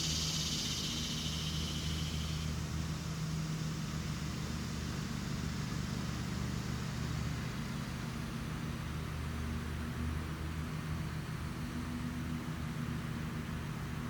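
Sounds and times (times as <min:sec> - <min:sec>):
high buzz: 0:00.0 - 0:05.6
even hiss: 0:00.0 - 0:08.4
low mechanical hum: 0:00.0 - 0:14.0.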